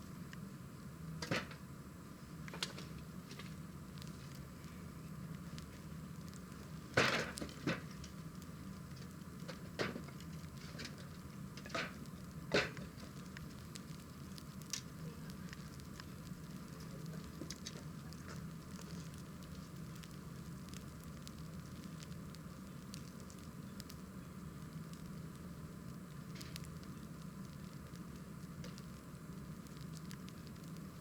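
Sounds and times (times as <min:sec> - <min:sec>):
fire crackling pops: 0:00.0 - 0:31.0
wood fire rushing: 0:02.2 - 0:31.0.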